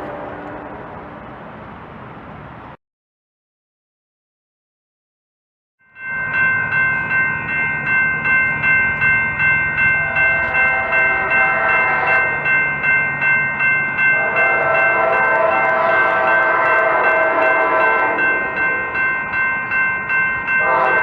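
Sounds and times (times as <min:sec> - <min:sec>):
train horn: 0:00.0 - 0:01.2, 0:10.0 - 0:12.4, 0:14.1 - 0:19.0, 0:20.6 - 0:21.0
railroad crossing bell ringing: 0:05.8 - 0:21.0.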